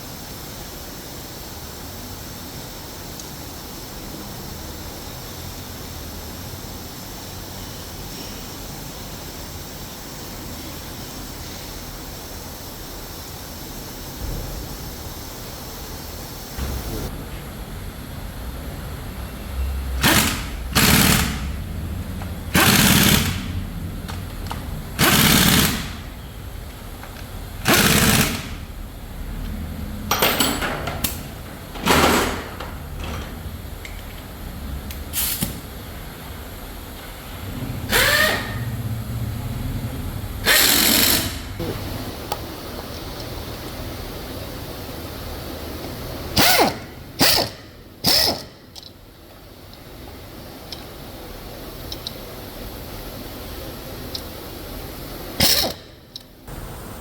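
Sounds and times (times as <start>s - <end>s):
power tool bursts: 19.9s - 21.6s, 22.5s - 23.6s, 25.0s - 26.1s, 27.6s - 28.7s, 37.9s - 38.8s, 40.4s - 42.7s, 44.2s - 48.9s, 55.3s - 56.8s
steady hiss: 38.7s - 57.0s.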